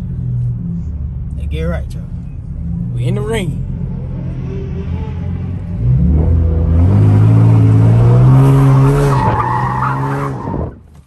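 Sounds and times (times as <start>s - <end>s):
car engine revving: 0.0s - 10.7s
tires squealing: 4.1s - 10.8s.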